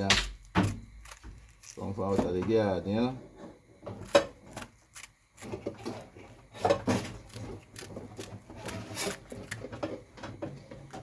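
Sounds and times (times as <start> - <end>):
knife shredding cabbage: 0.0 - 2.6, 4.0 - 10.0.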